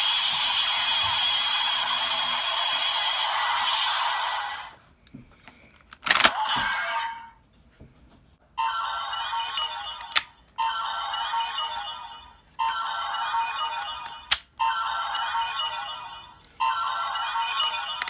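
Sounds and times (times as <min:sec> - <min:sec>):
sharp plastic click: 0:05.8 - 0:06.4, 0:10.0 - 0:10.3, 0:14.0 - 0:14.6
toy electronic sound effect: 0:08.6 - 0:18.0.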